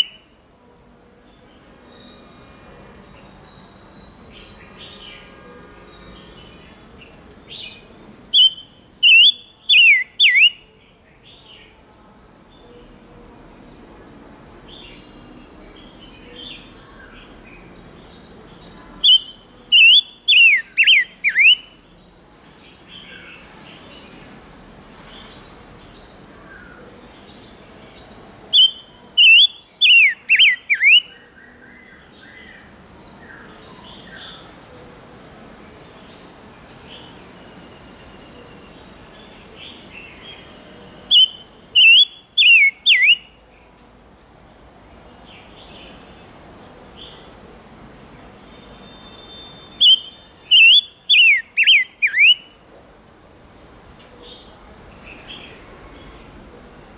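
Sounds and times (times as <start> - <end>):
faint bird chirps: 7.6 - 11.8, 15.8 - 21.8, 48.5 - 52.6
songbird sharp downward notes: 8.3 - 10.6, 19.0 - 21.6, 41.1 - 43.2, 49.2 - 52.5.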